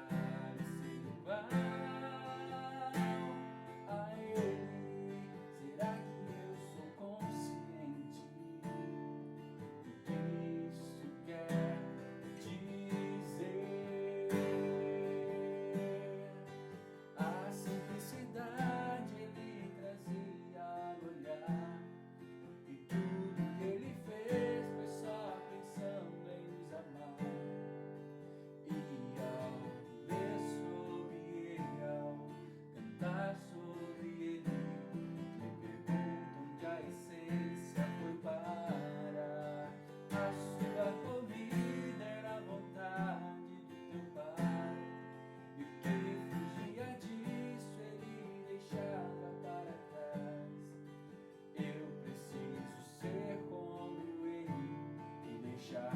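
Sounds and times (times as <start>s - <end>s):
acoustic guitar strumming chords: 0.0s - 55.9s.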